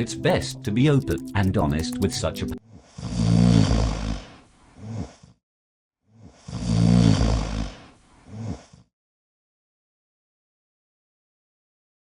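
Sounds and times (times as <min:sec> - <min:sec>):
loud snoring: 0:06.5 - 0:07.9.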